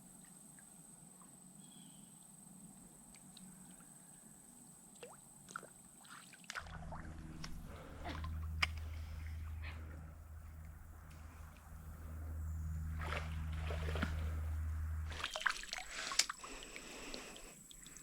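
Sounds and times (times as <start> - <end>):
creek water splashing: 5.5 - 9.9, 10.6 - 18.0
low rumble: 6.6 - 17.2.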